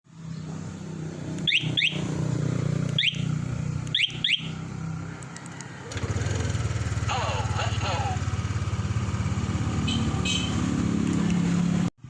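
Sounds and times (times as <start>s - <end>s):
motorcycle engine idling: 5.8s - 10.9s.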